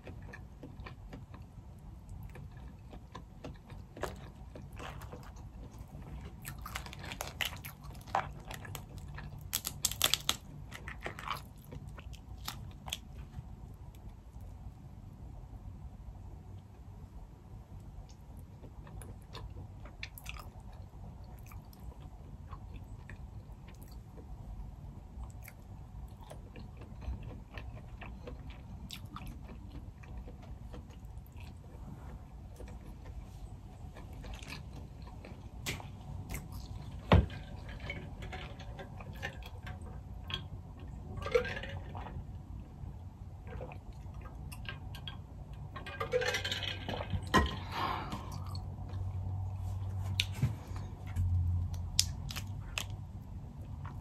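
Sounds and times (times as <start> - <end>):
person chewing: 0.0 - 13.2, 25.2 - 31.9, 51.7 - 53.0
shells being peeled: 9.3 - 11.0.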